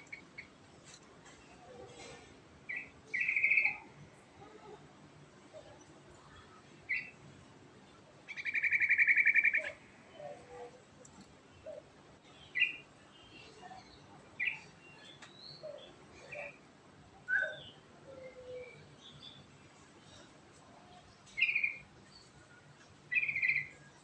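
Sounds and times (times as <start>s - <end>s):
bird singing trills and chirps: 2.7s - 3.9s, 6.9s - 7.2s, 8.3s - 10.7s, 11.6s - 16.6s, 17.2s - 19.5s, 21.3s - 24.0s.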